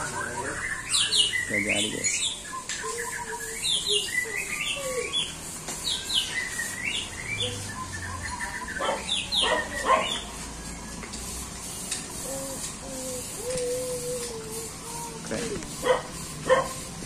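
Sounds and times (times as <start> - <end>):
bird chirping: 0.0 - 17.0
harsh bird rasp: 2.9 - 7.7, 8.6 - 17.0.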